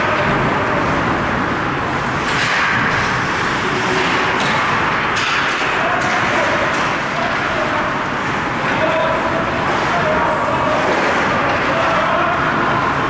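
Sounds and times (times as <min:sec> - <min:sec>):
arena noise: 0:00.0 - 0:13.0.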